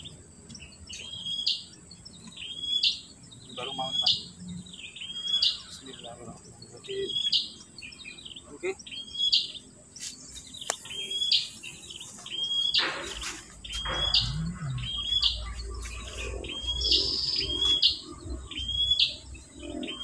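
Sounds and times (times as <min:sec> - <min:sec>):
bird high rising call: 0:10.8 - 0:19.2.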